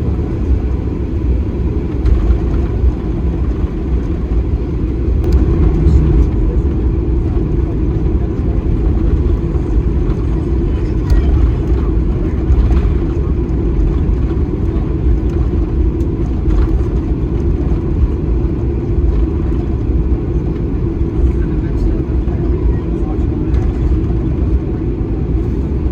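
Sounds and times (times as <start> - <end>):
airliner engine rumble in cabin: 0.0 - 25.9.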